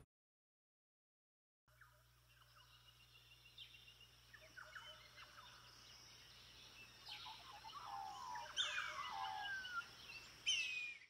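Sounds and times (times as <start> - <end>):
birds chirping and whistling: 3.6 - 11.0.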